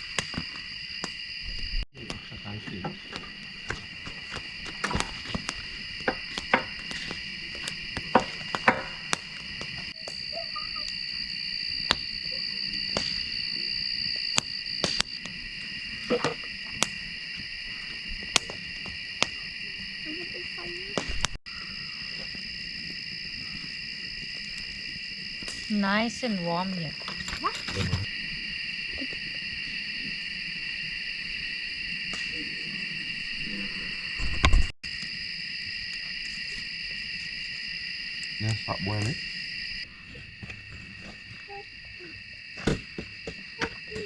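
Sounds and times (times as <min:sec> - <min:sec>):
crickets chirping: 0:00.0 - 0:44.0
wood fire crackling: 0:02.0 - 0:20.0, 0:22.0 - 0:28.1.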